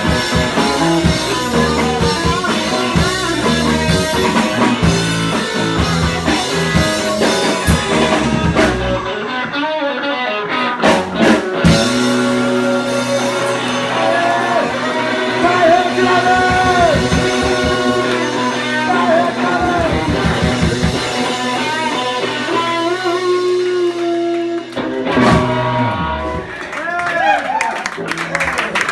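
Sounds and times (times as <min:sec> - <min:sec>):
drum hits: 0:00.0 - 0:09.1, 0:11.0 - 0:23.6
rock band playing live: 0:00.0 - 0:26.8.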